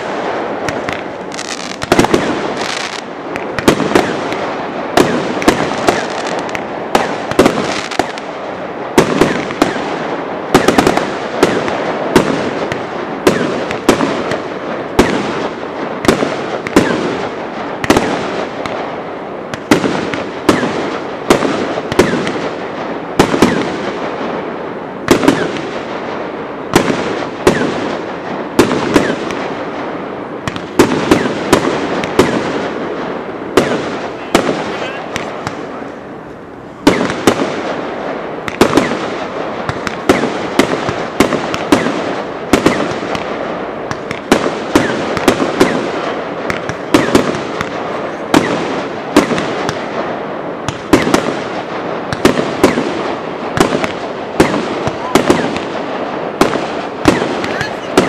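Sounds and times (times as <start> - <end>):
firework shells bursting: 0.0 - 24.2, 36.8 - 58.0
fireworks crackling: 0.0 - 58.0.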